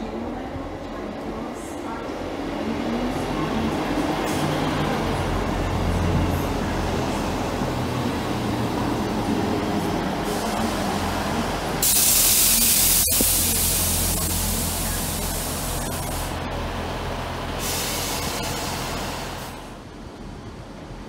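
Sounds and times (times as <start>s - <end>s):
train running hum: 0.0s - 21.0s
loud sudden hiss: 11.8s - 16.3s, 17.6s - 19.8s.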